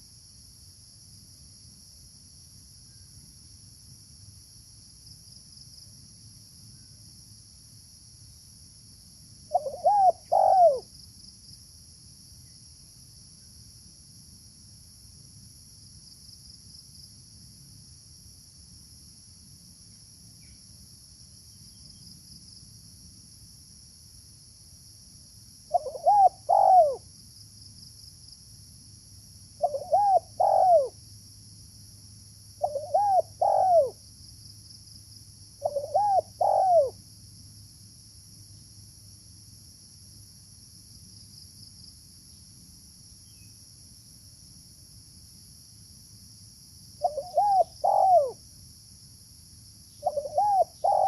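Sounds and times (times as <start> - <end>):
dove cooing: 9.5 - 10.8, 25.7 - 27.0, 29.6 - 30.9, 32.6 - 34.0, 35.6 - 37.0, 47.0 - 48.4, 50.0 - 51.0.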